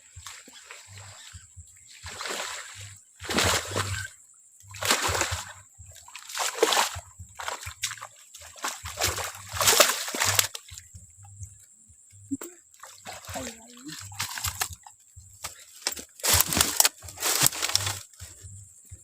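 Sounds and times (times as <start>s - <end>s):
water splashing hard: 1.9s - 4.1s, 4.7s - 10.8s, 12.8s - 14.7s.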